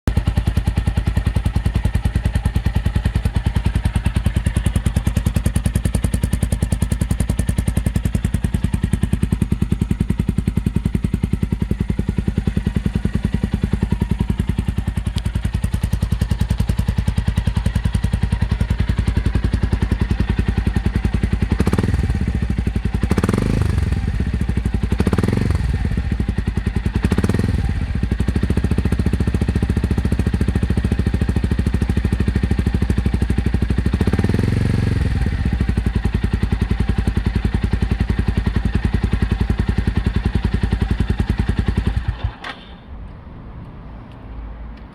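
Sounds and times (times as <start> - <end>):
motorcycle engine idling: 0.1 - 43.2.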